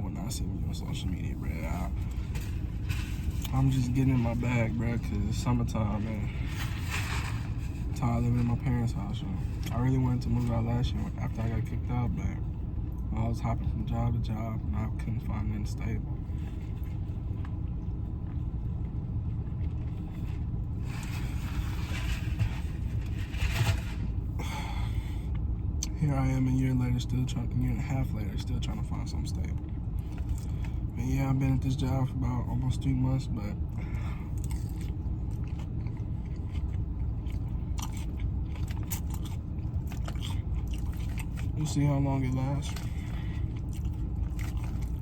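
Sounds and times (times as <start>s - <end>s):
steady low rumble: 0.0s - 45.0s
crisp crunches: 1.5s - 10.6s, 19.7s - 24.5s
person chewing food: 33.9s - 41.6s, 42.6s - 45.0s.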